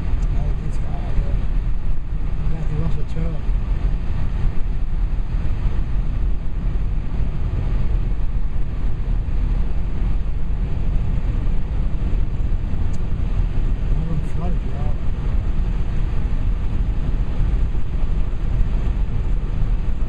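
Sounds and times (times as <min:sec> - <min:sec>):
wind and road noise: 0:00.0 - 0:20.0.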